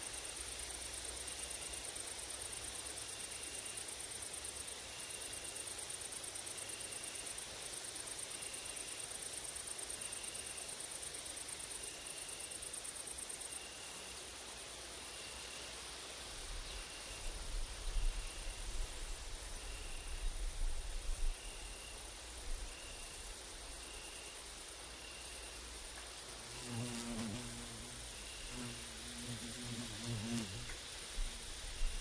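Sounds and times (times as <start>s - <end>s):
wind rumble on microphone: 17.3s - 21.4s
flying insect buzzing: 21.1s - 32.0s
grasshopper buzzing trill: 21.1s - 32.0s.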